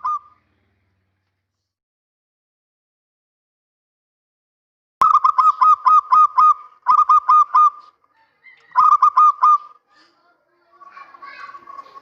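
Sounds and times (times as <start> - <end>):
dove cooing: 0.0 - 0.4, 5.1 - 9.8.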